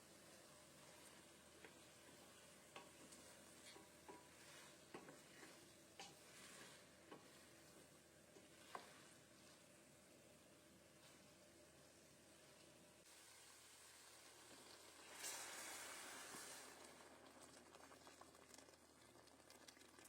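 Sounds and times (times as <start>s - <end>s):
spoon stirring in cooking pot: 0.0s - 11.7s
faint sizzle: 0.0s - 20.0s
knocks and scrapes against pot: 1.6s - 9.2s.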